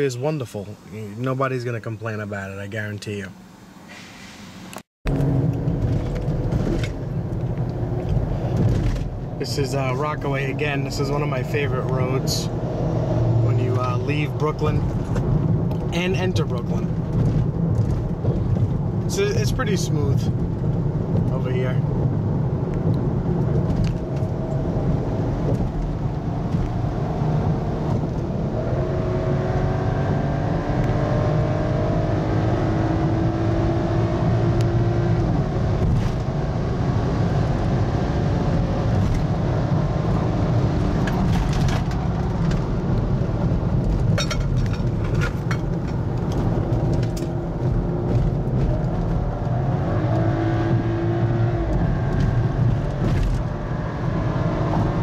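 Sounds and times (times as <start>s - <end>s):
road rumble: 0.0s - 55.0s
car engine accelerating: 4.6s - 55.0s.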